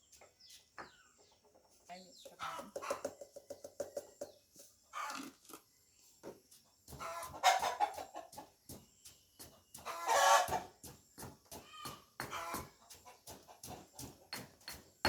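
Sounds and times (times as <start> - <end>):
chicken squawking and clucking: 4.9 - 5.3, 7.0 - 8.5, 9.8 - 10.8, 11.7 - 14.0.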